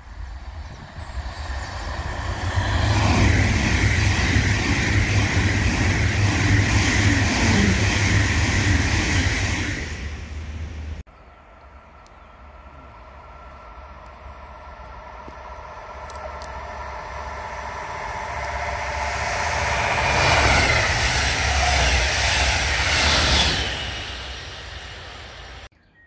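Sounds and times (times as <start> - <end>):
high-speed train passing: 0.0 - 25.7.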